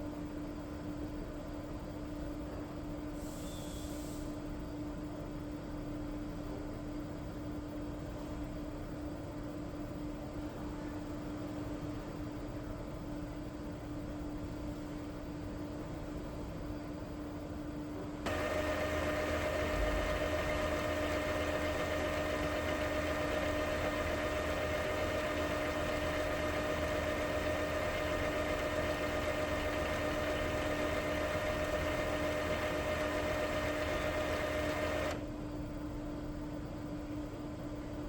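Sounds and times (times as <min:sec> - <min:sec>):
printer motor whine: 0:18.3 - 0:35.3.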